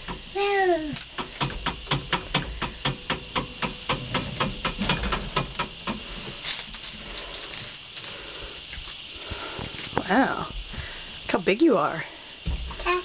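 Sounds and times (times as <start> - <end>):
rapid clicking in tractor cab: 1.1 - 6.0.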